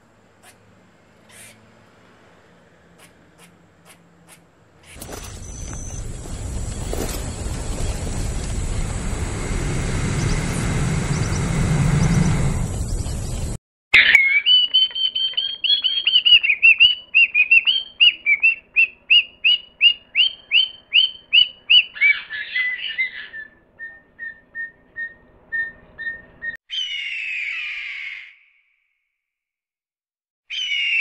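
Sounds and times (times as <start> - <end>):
bird calling high notes: 14.0 - 28.4
harsh bird call: 14.0 - 28.6, 30.5 - 31.0.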